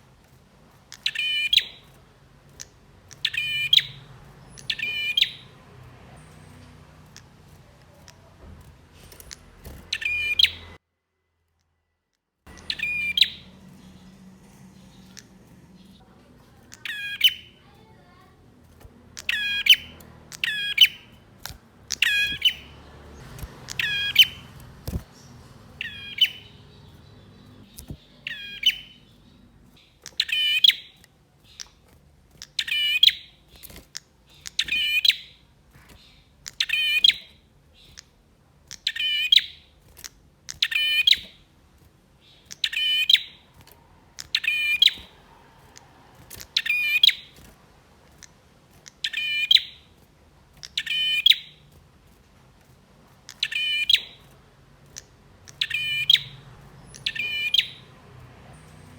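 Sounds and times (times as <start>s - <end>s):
bird chirping sharply: 0.9s - 10.8s, 12.5s - 31.8s, 32.4s - 38.1s, 38.7s - 39.8s, 40.5s - 41.4s, 42.2s - 47.5s, 48.1s - 50.0s, 50.6s - 51.7s, 53.3s - 58.9s.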